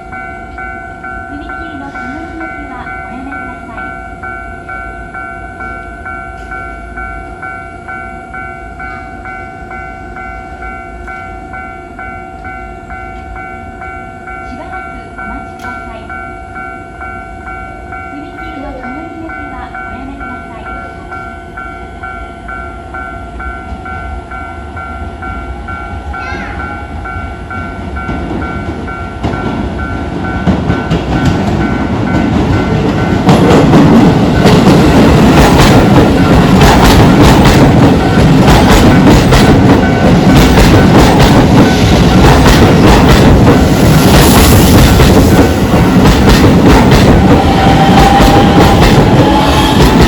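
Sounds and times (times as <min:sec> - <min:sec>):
level crossing warning bell: 0:00.0 - 0:50.0
train rumble: 0:00.0 - 0:50.0
train wheels clattering over rail joints: 0:27.9 - 0:50.0.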